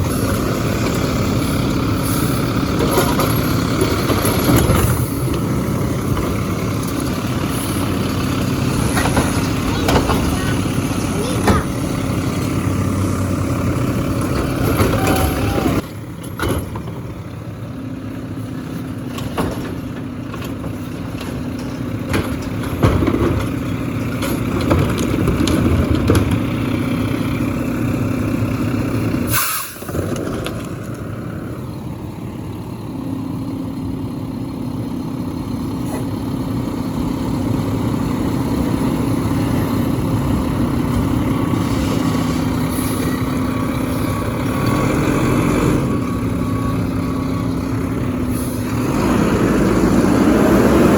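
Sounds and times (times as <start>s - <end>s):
garbage truck engine running: 0.0s - 50.9s
knocks and clanks: 2.7s - 7.1s, 8.7s - 10.7s, 16.2s - 17.1s, 19.0s - 26.5s.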